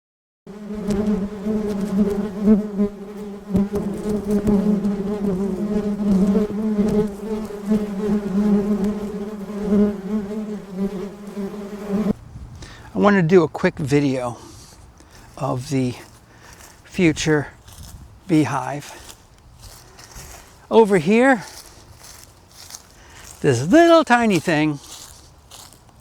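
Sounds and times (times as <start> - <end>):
bees buzzing: 0.5 - 12.2, 18.3 - 25.1.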